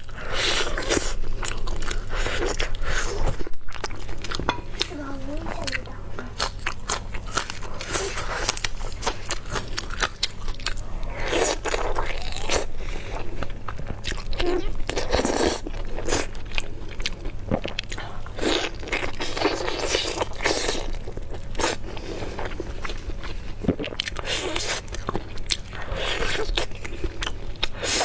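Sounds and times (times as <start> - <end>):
crunchy bites and chewing: 6.4 - 28.0.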